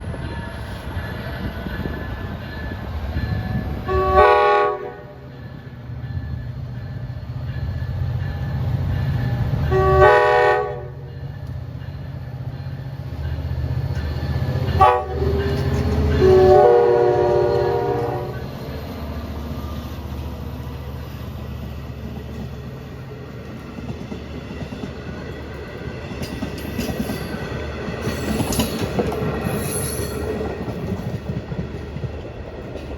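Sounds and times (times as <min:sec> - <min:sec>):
train wheels clattering on rail: 0:00.0 - 0:32.9
locomotive air horn blasts: 0:03.8 - 0:05.2, 0:09.6 - 0:11.1, 0:14.7 - 0:18.4.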